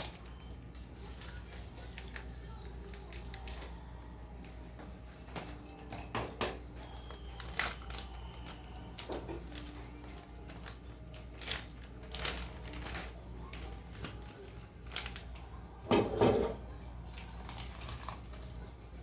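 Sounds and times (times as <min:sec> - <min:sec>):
dishes clattering: 0:05.3 - 0:07.0, 0:15.9 - 0:16.7
utensils and dishes clicking: 0:05.3 - 0:19.0.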